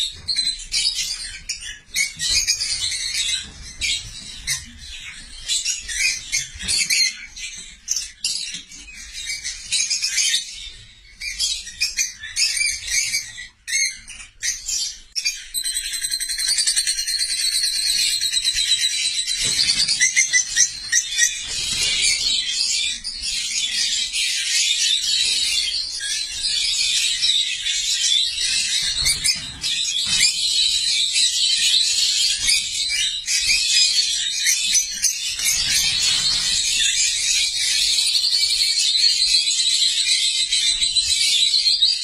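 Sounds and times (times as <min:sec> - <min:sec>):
lovebirds chattering: 0:19.0 - 0:31.6, 0:34.4 - 0:37.8.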